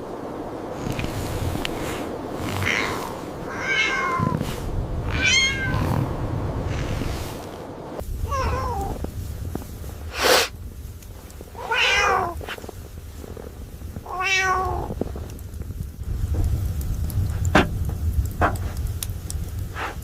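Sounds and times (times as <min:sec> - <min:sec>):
low steady rumble: 0:00.0 - 0:20.0
cat meowing: 0:02.5 - 0:06.0, 0:08.2 - 0:09.0, 0:11.6 - 0:12.4, 0:14.0 - 0:15.0.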